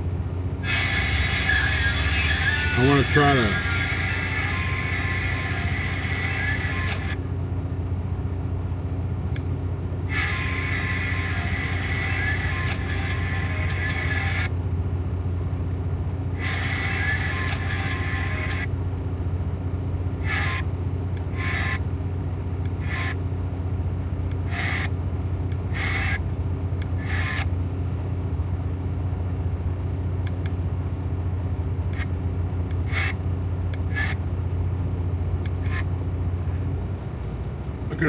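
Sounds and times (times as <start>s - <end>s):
truck diesel engine droning: 0.0s - 21.1s, 33.2s - 38.0s.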